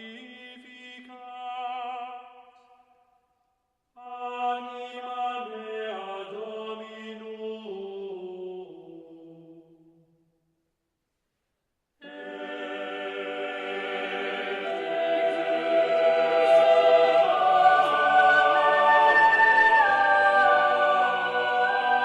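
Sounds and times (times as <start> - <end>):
choir singing long held notes: 12.0 - 22.0.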